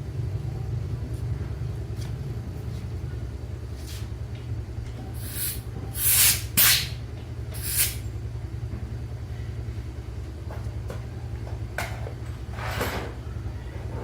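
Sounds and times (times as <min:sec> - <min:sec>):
machine low rumble: 0:00.0 - 0:14.0
short bursts of hiss: 0:05.2 - 0:07.0, 0:07.6 - 0:08.0.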